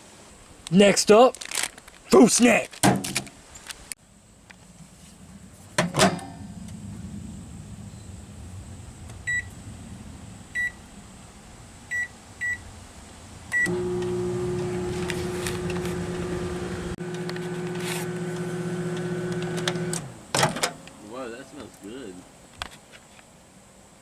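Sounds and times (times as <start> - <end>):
microwave oven humming: 13.6 - 20.3.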